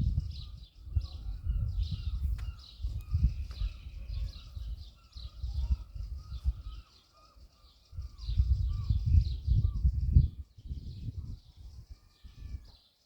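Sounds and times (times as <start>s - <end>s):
gusty low rumble: 0.0s - 6.6s
small birds chirping: 0.0s - 13.0s.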